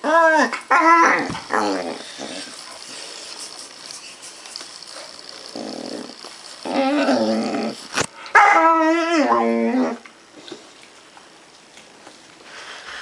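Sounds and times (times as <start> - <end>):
puppy whining: 0.0 - 10.1.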